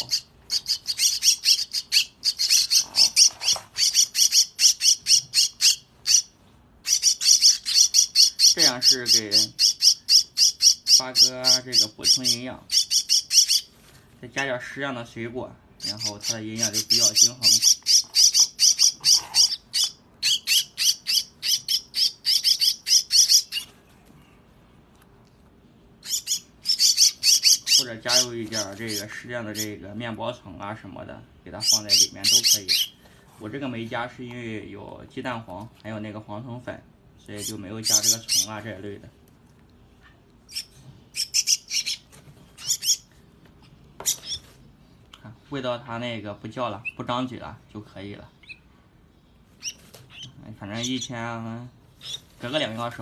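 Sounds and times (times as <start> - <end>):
bird chick begging calls: 0.0 - 13.7, 15.8 - 23.7, 26.0 - 29.7, 37.4 - 38.5, 40.5 - 43.1.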